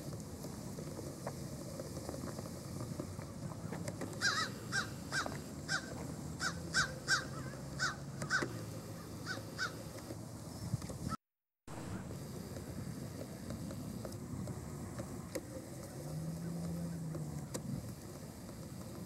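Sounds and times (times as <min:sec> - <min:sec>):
bird harsh calls: 0:04.2 - 0:09.9.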